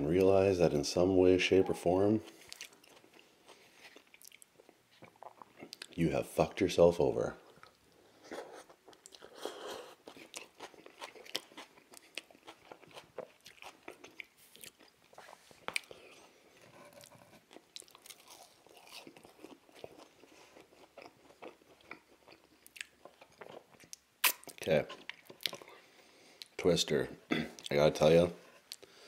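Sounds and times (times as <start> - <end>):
wet chewing with clicks: 2.3 - 6.0, 8.8 - 9.4, 10.0 - 16.4, 17.0 - 25.8.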